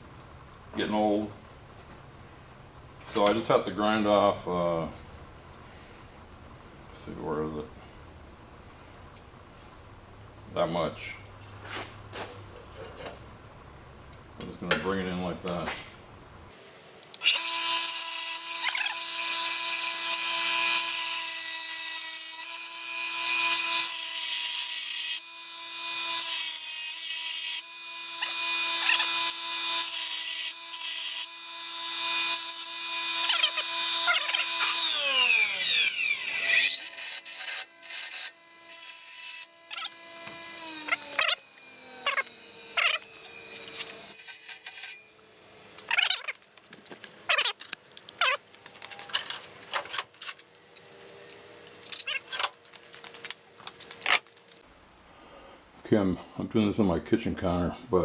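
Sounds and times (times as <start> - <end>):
grinding rasp on metal: 17.2 - 45.1
electric grinder motor whine: 17.2 - 46.0.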